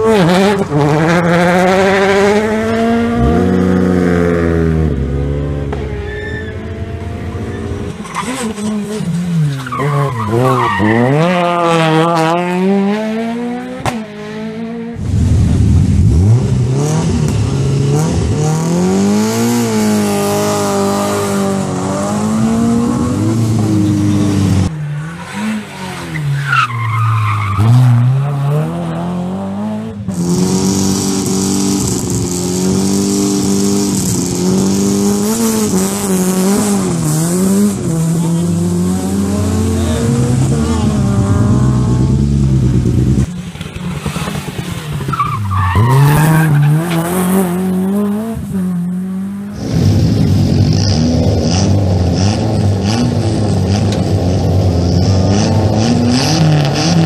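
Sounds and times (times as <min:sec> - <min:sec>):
rally car engines revving: 0:00.0 - 0:57.0
tyres squealing and skidding: 0:05.8 - 0:12.0, 0:23.7 - 0:29.0, 0:43.7 - 0:49.6.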